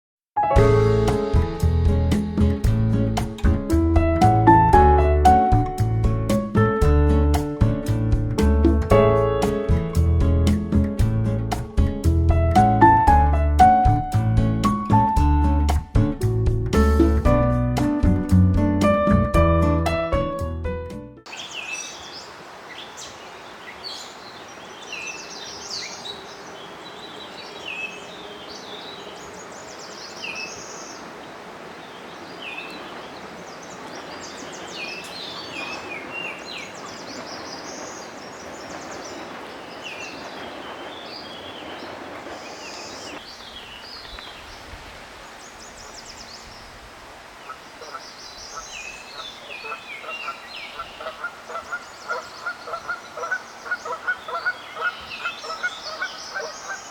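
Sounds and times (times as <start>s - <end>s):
lower repeated bird calls: 21.3s - 44.7s, 47.4s - 56.9s
background hiss: 21.3s - 56.9s
birds chirping: 21.3s - 56.9s.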